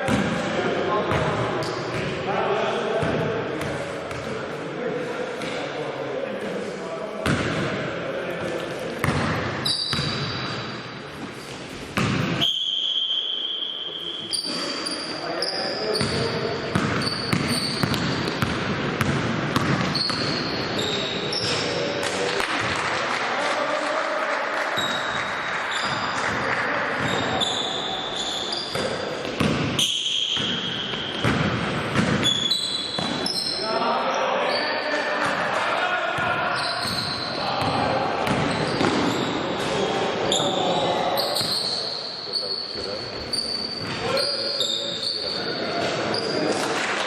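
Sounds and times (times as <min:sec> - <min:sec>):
basketball bouncing on court: 0:00.0 - 0:00.4, 0:03.0 - 0:04.3, 0:07.2 - 0:07.7, 0:09.0 - 0:10.7, 0:11.8 - 0:12.4, 0:16.0 - 0:21.7, 0:24.8 - 0:27.7, 0:28.5 - 0:33.5, 0:36.2 - 0:39.6.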